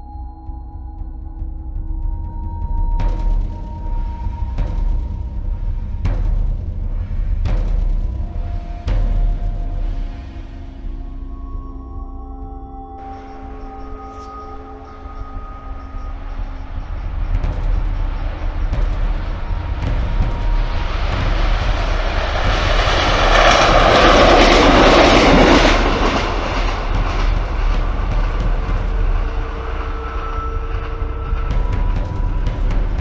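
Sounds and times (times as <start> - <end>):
diesel railcar passing: 13.0 - 33.0.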